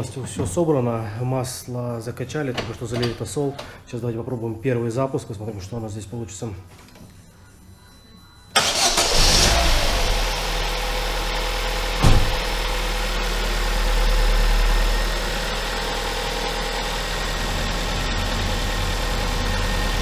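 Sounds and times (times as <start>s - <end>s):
car engine starting and idling: 8.6s - 20.0s.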